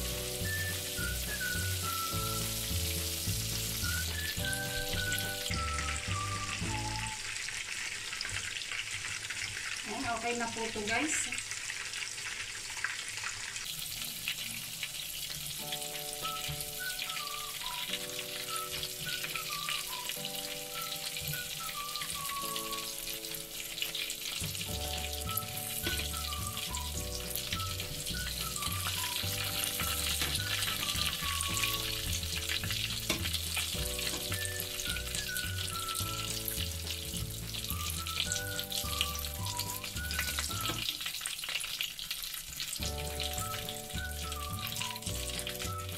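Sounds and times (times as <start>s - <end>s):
background music: 0.0s - 7.2s, 15.6s - 40.9s, 42.8s - 45.9s
bass line: 0.0s - 7.2s, 24.7s - 40.8s, 42.8s - 45.9s
food deep-frying in hot oil: 0.0s - 45.9s.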